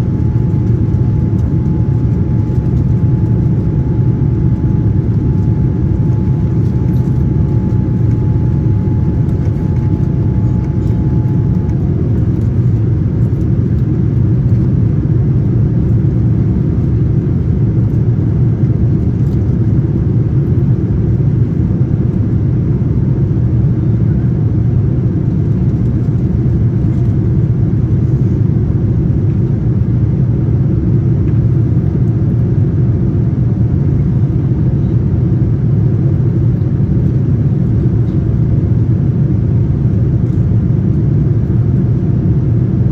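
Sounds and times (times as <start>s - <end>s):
faint thin whine: 0.0s - 14.6s
airplane cabin engine rumble: 0.0s - 42.9s.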